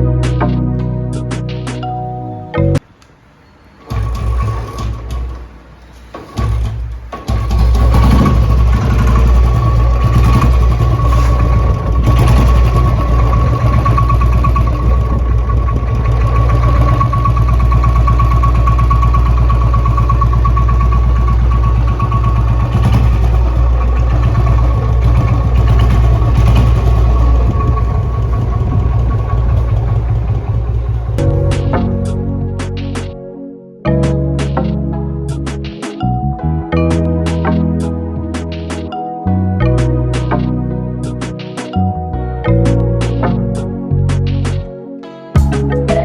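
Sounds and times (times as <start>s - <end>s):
motorcycle engine thumping: 3.8s - 32.2s.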